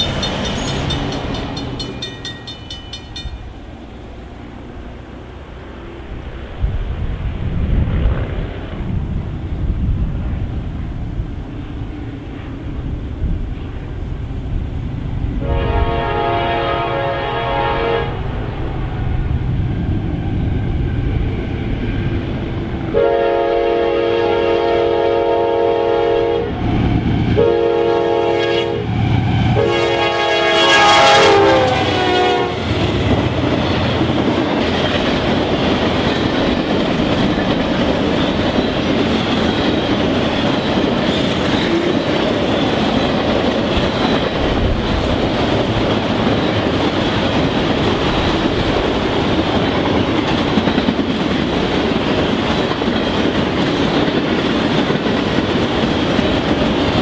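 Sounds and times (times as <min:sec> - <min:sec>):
train wheels clicking over rails: 0:00.0 - 0:06.4, 0:32.6 - 0:57.0
train horn blasts: 0:15.4 - 0:18.4, 0:22.9 - 0:26.6, 0:27.4 - 0:32.7.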